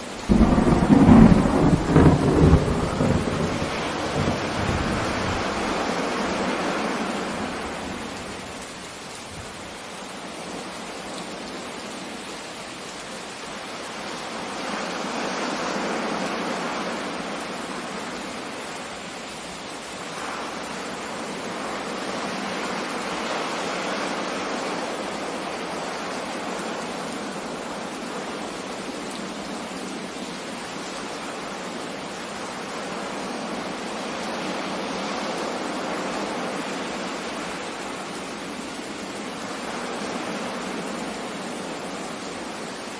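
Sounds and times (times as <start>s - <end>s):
sea surf: 0.0s - 8.6s, 13.7s - 18.8s, 20.0s - 30.1s, 30.8s - 42.9s
rain: 0.0s - 42.9s
thunder rumble: 0.2s - 8.2s.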